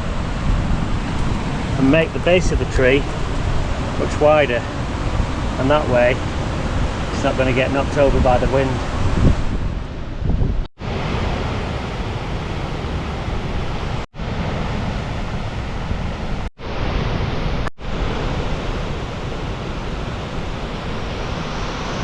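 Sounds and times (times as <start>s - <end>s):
steady low rushing noise: 0.0s - 11.0s, 17.8s - 22.0s.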